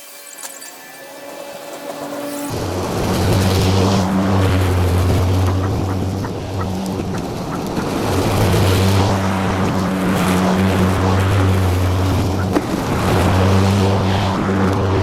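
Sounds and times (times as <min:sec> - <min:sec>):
lawn mower engine running: 0:01.2 - 0:15.0.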